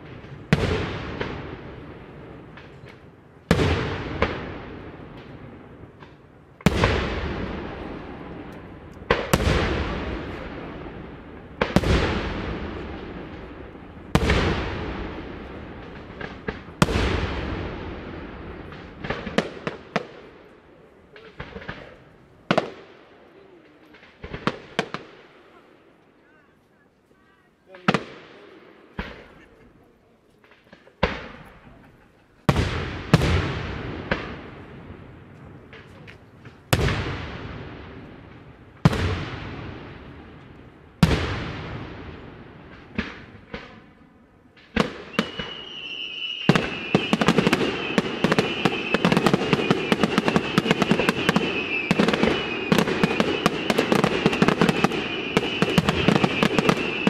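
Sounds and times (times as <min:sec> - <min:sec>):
fireworks bursting with bangs: 0:00.0 - 0:25.9, 0:27.7 - 0:57.0
faint firework pops: 0:42.7 - 0:44.0.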